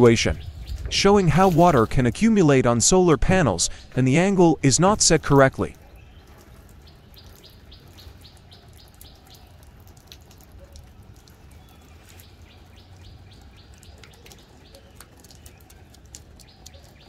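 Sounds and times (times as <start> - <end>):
small bird chirping: 5.8 - 10.4.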